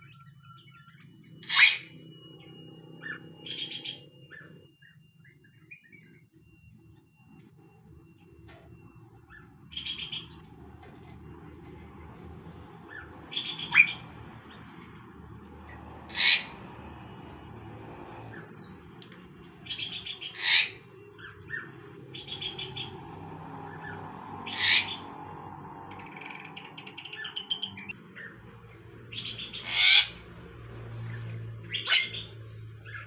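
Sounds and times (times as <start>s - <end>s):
birds stuttering trills: 0.0s - 33.0s
sharp bird calls: 0.3s - 6.3s, 8.8s - 10.5s, 12.8s - 14.9s, 15.5s - 28.4s, 29.0s - 30.3s, 31.2s - 33.0s.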